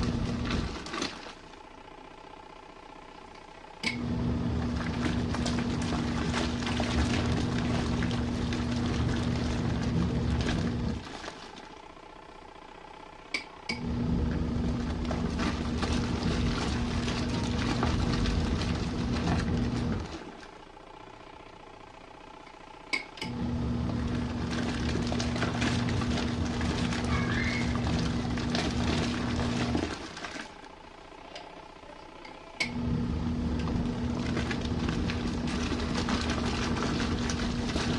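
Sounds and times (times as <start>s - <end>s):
water sloshing in drum: 0.0s - 1.6s, 4.6s - 11.9s, 14.3s - 20.6s, 23.9s - 30.7s, 33.5s - 37.9s
washing machine motor humming: 0.0s - 37.9s.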